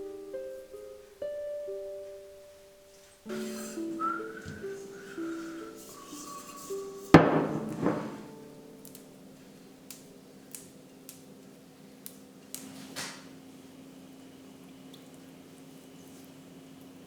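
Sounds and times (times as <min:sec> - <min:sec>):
loud sharp knock ringing: 0:07.2 - 0:08.3.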